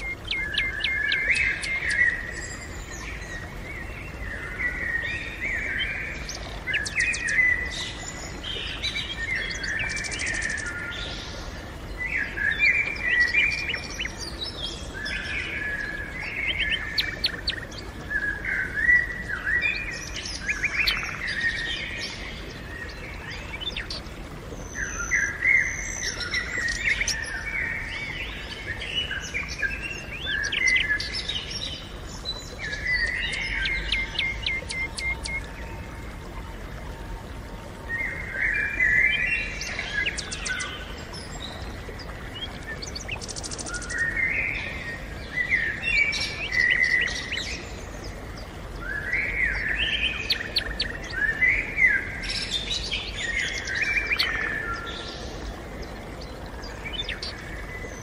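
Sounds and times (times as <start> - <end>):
songbirds twittering: 0.0 - 58.0.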